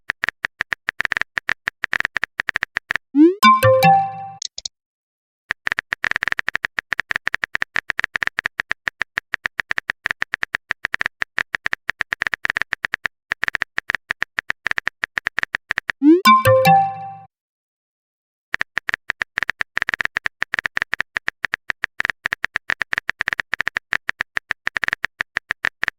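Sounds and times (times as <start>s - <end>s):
phone keyboard typing clicks: 0.5s - 4.7s
notification chime: 3.2s - 4.4s, 16.0s - 17.3s.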